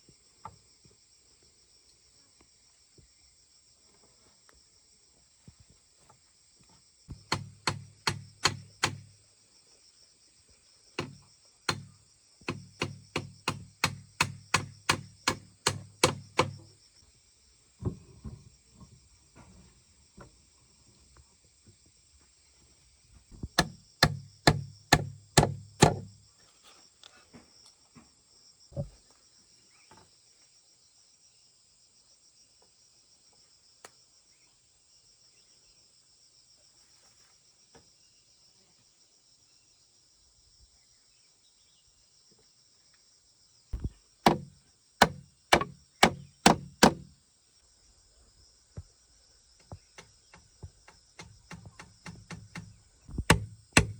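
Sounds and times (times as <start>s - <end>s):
insects buzzing: 0.0s - 53.9s
tool striking wood: 7.1s - 9.1s, 11.0s - 11.9s, 12.5s - 16.6s, 23.5s - 26.1s, 43.8s - 47.1s, 51.2s - 53.9s.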